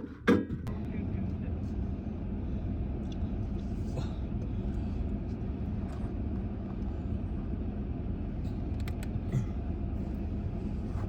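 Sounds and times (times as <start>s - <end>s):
vehicle rumbling on dirt road: 0.0s - 11.0s.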